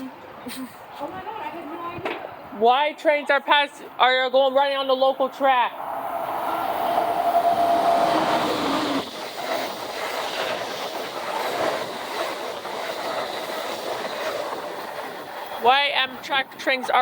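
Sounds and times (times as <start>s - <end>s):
steady tone: 5.5s - 9.6s
train wheels clattering on rail: 5.9s - 17.0s.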